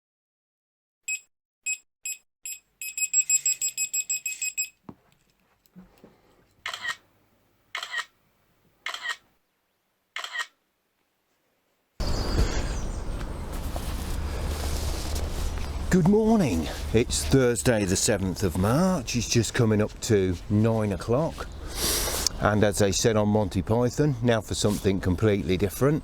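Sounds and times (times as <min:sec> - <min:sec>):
electronic beeps: 0:01.1 - 0:04.8.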